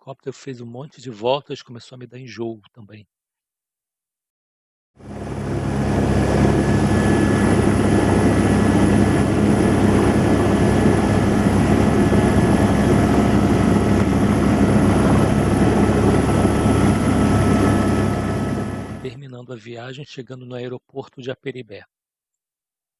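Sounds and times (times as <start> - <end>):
helicopter rotor and engine: 5.0 - 19.1.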